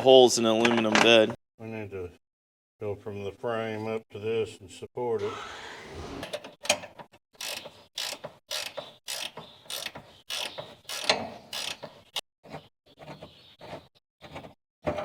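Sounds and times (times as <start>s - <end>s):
ratchet tool clicking: 7.4s - 11.8s.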